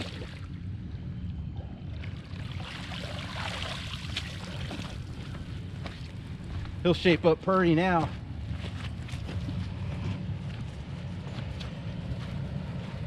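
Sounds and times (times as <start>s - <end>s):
creek water splashing and trickling: 0.0s - 0.6s, 1.9s - 6.2s
turkey sloshed in water: 0.0s - 0.6s, 1.8s - 6.2s.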